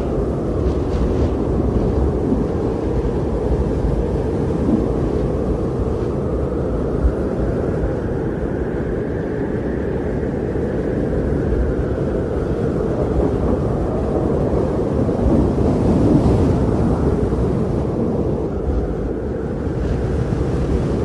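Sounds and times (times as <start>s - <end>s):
blizzard wind roaring: 0.0s - 21.0s.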